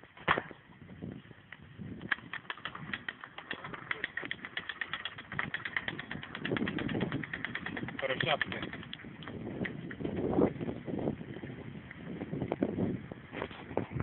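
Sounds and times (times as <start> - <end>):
tyres and wind rumble: 0.1 - 14.0
bicycle freewheel ticking: 2.1 - 10.2.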